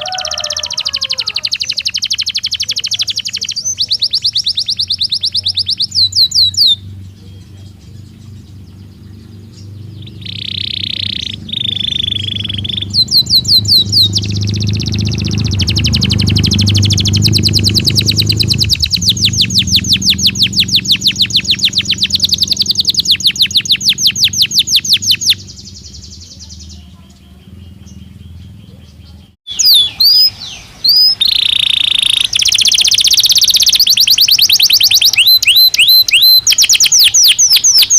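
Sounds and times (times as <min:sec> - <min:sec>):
canary singing trills: 0:00.0 - 0:37.9
steady low hum: 0:04.8 - 0:29.4.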